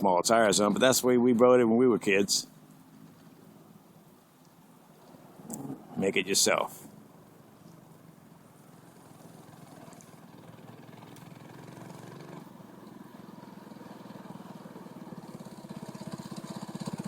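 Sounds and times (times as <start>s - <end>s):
minibike engine running: 6.9s - 17.0s.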